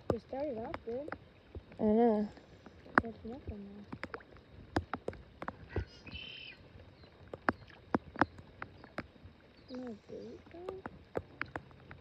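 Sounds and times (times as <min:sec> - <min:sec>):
light taps and clicks: 0:02.4 - 0:05.9, 0:07.2 - 0:12.0.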